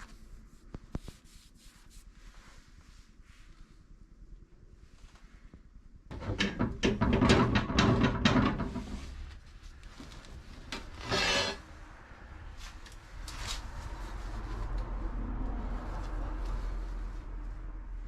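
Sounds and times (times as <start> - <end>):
scraping and knocking: 6.1 - 9.4, 10.0 - 11.6
long rasping scrape: 10.9 - 11.8.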